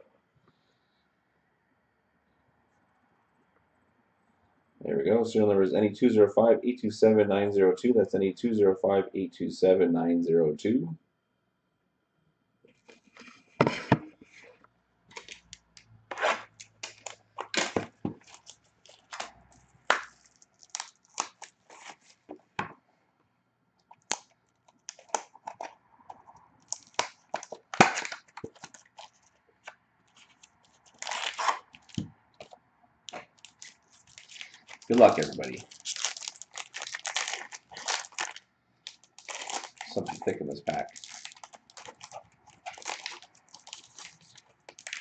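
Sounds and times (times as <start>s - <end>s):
plastic wrapping tearing and crinkling: 15.1s - 22.2s, 23.9s - 25.7s, 26.6s - 29.4s, 30.1s - 45.0s.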